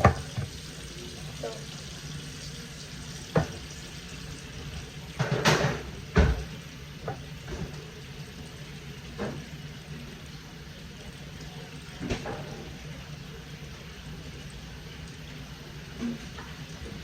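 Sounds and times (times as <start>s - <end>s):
kitchen knocks: 0.0s - 0.5s, 5.2s - 6.5s.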